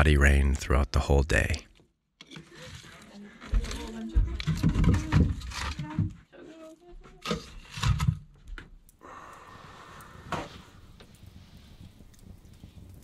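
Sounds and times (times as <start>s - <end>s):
fire crackle: 2.2s - 13.0s
firewood logs knocking: 3.5s - 6.2s
stove hissing: 9.0s - 13.0s.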